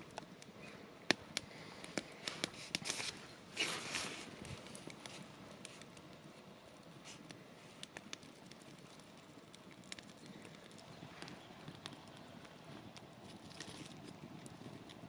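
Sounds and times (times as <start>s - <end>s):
sharp ticks and crackles: 4.4s - 15.0s.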